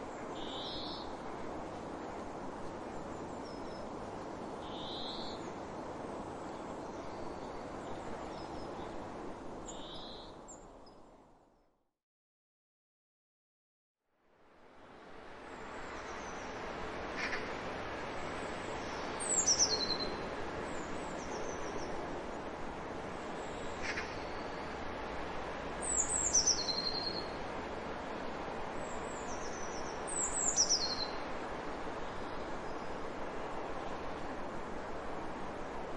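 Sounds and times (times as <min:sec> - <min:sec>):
background hiss: 0:00.0 - 0:10.7, 0:14.2 - 0:35.9
small bird singing: 0:00.4 - 0:01.1, 0:04.6 - 0:05.5, 0:09.7 - 0:11.0, 0:19.2 - 0:21.9, 0:25.8 - 0:27.4, 0:28.8 - 0:31.2
bird calls: 0:23.7 - 0:24.5.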